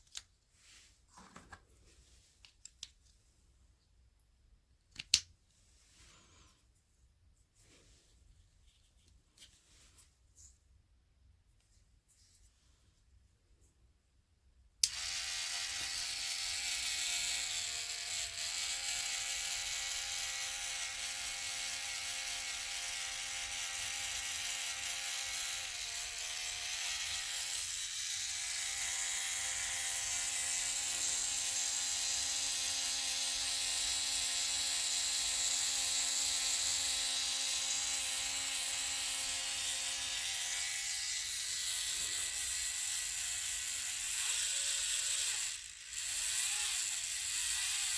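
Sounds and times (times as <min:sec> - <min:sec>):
small electric motor whirring: 0:14.8 - 0:47.9.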